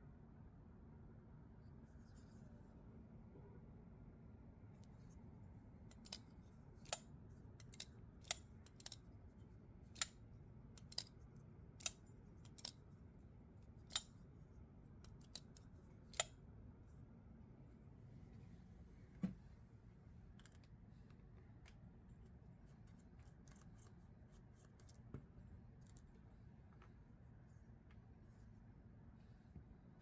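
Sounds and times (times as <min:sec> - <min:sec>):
metallic clicks of pocket knife: 0:05.9 - 0:09.0, 0:10.0 - 0:10.2, 0:10.8 - 0:11.2, 0:11.8 - 0:12.8, 0:13.9 - 0:14.1, 0:15.1 - 0:16.4.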